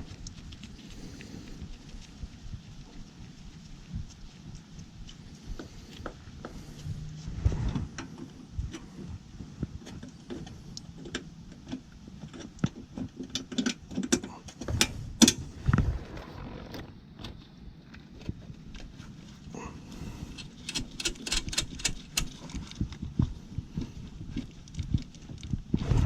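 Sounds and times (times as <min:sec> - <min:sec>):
hand tools clicking and knocking: 0:11.0 - 0:15.5, 0:20.3 - 0:22.8.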